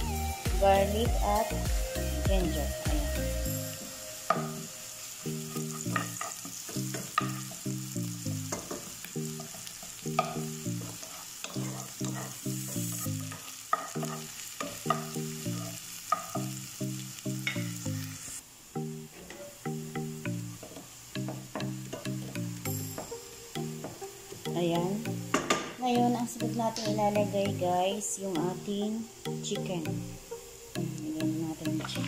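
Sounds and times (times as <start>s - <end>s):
vegetables sizzling in hot oil: 0.0s - 32.0s
spatula scraping a pan: 9.4s - 14.9s.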